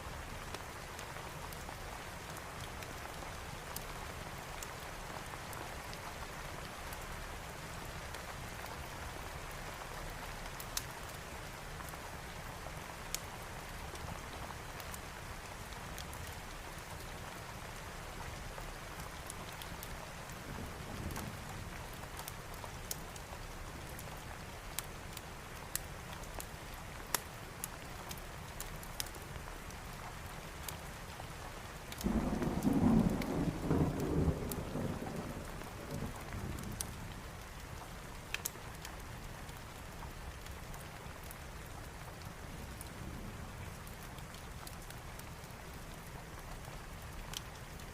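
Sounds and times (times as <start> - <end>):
steady rain: 0.0 - 47.9
thunder rumbling: 32.0 - 37.2.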